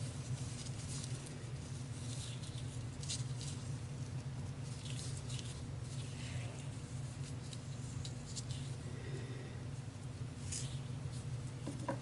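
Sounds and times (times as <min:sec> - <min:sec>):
ribbon and cardstock rustling: 0:00.0 - 0:08.8.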